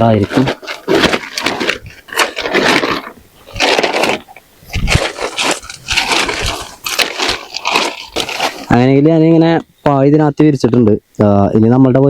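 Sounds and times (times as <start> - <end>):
tent fabric rustling: 0.0 - 8.8.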